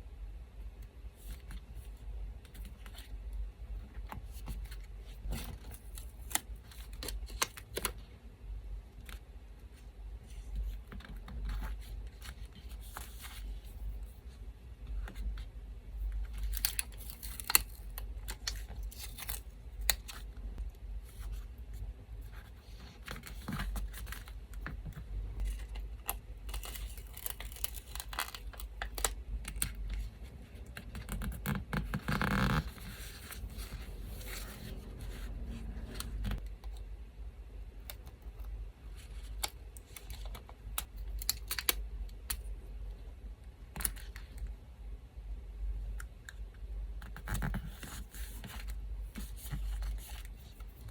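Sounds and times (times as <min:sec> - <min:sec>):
electric fan hum: 0:00.0 - 0:50.9
paper tearing and rustling: 0:26.5 - 0:29.1.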